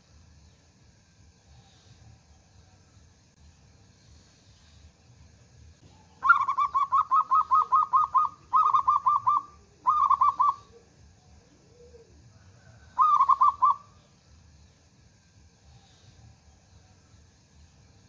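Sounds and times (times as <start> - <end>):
dove cooing: 5.8 - 14.0.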